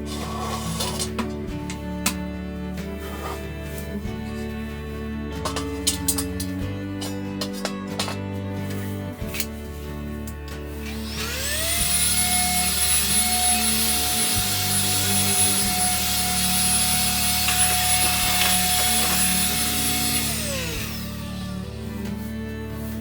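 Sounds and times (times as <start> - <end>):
small electric motor whining: 10.6 - 23.0.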